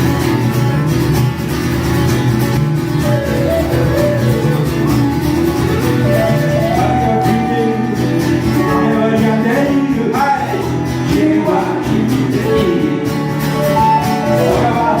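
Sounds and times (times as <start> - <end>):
strummed acoustic guitars: 0.0 - 15.0
person singing: 6.0 - 15.0.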